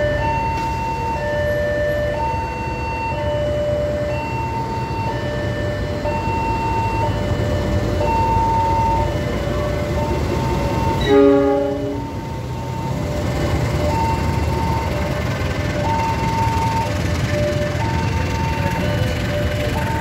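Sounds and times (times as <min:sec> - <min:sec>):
passenger train rumbling: 0:00.0 - 0:20.0
two-tone signal: 0:10.6 - 0:12.3
train horn blast: 0:11.0 - 0:12.2.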